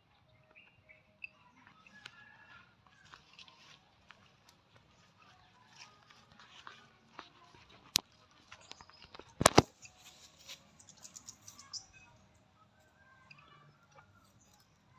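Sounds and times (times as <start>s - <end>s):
faint bird chirps: 8.6s - 14.9s
sharp click: 9.4s - 9.8s.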